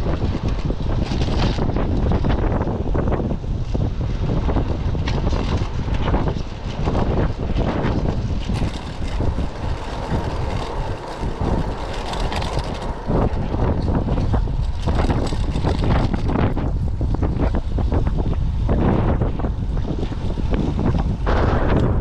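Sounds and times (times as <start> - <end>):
strong wind buffeting microphone: 0.0 - 22.0.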